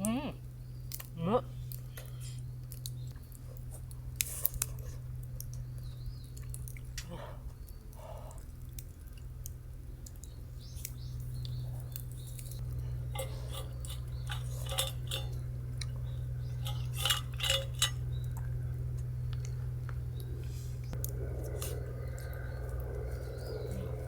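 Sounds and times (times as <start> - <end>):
steady low hum: 0.0 - 24.0
utensils clinking on dishes: 13.1 - 18.4.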